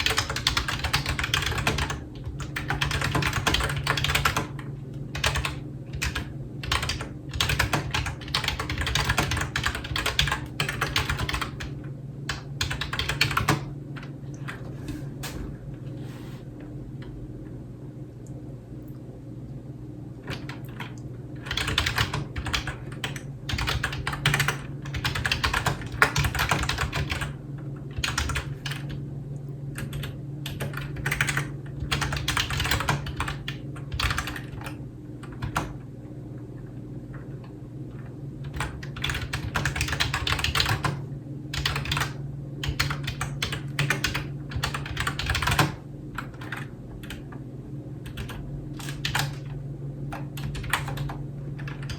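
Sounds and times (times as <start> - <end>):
typing on computer keyboard: 0.0 - 11.7, 12.3 - 13.7, 20.3 - 27.4, 28.0 - 29.0, 29.8 - 35.8, 38.4 - 41.0, 41.6 - 47.3, 48.1 - 51.9.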